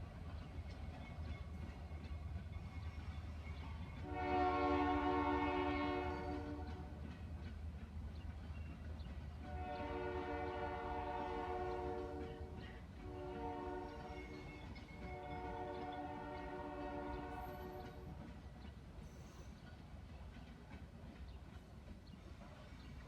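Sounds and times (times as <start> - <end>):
train rumbling: 0.0 - 23.0
locomotive air horn blasts: 4.0 - 6.8, 9.5 - 12.3, 13.0 - 14.3, 15.1 - 18.0.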